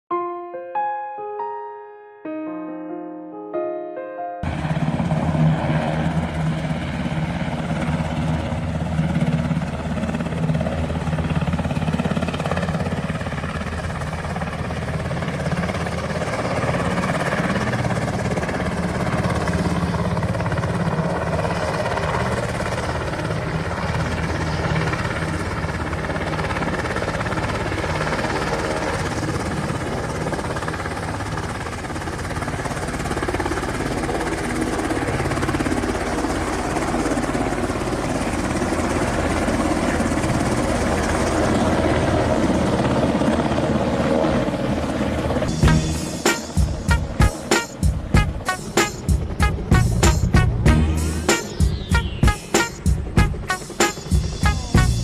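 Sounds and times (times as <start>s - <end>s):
helicopter rotor thudding: 45.5s - 55.0s
turbine engine noise: 45.5s - 55.0s.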